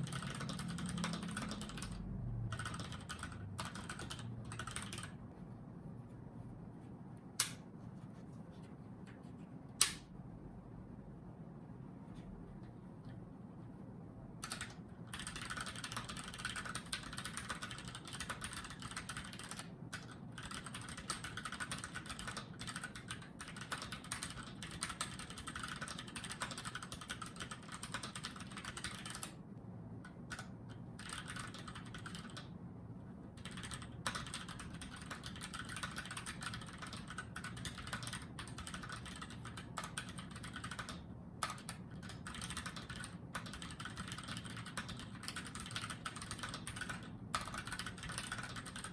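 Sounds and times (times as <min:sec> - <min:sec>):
mechanical keyboard typing: 0:00.0 - 0:05.2, 0:14.4 - 0:29.4, 0:30.0 - 0:32.6, 0:33.3 - 0:48.9.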